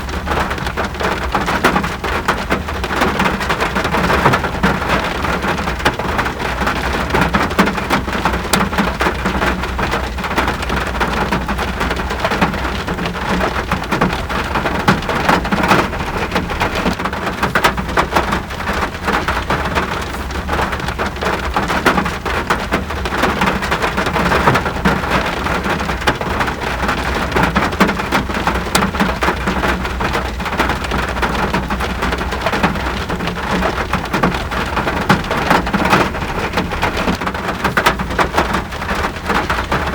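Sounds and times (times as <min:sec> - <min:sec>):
raindrops clicking on a surface: 0:00.0 - 0:39.9
rain hissing: 0:09.0 - 0:29.9.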